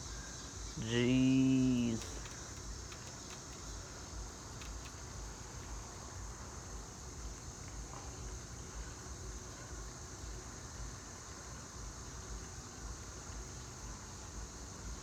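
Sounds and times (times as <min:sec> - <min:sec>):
insect chorus: 0:00.0 - 0:15.0
faint clicks: 0:01.6 - 0:05.8.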